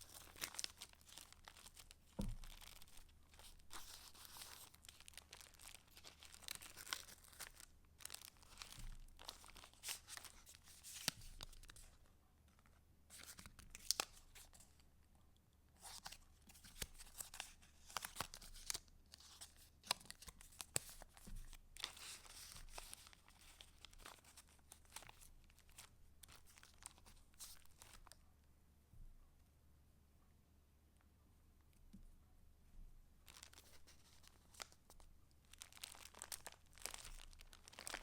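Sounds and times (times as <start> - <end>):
paper pages turning: 0.0 - 11.9, 12.6 - 14.7, 15.8 - 28.2
paper crinkling and rustling: 0.0 - 14.8, 15.8 - 28.2, 33.2 - 38.0.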